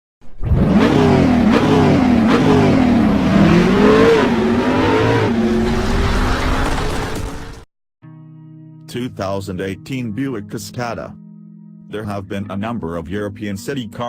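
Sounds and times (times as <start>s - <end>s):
car engine revving: 0.2s - 6.7s.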